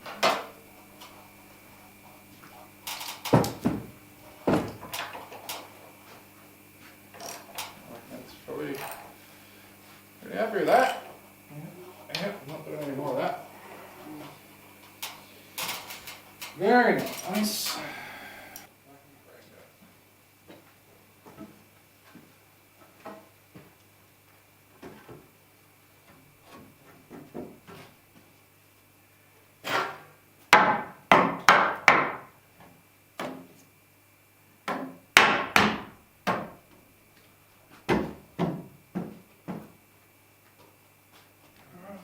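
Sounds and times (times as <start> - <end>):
hammer striking timber: 30.5 - 32.3, 34.7 - 36.5.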